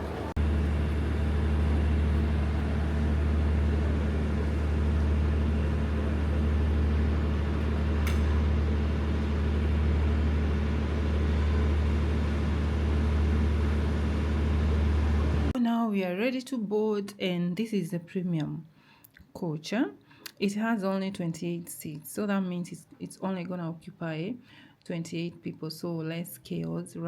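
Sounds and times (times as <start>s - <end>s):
diesel train idling hum: 0.0s - 15.6s.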